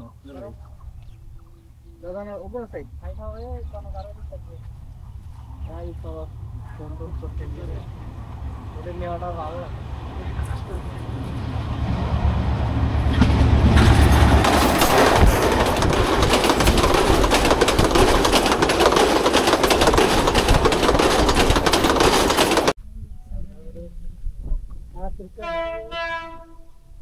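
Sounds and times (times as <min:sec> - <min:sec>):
deep locomotive rumble: 0:00.0 - 0:26.4
train wheels clacking over rail joints: 0:13.0 - 0:22.8.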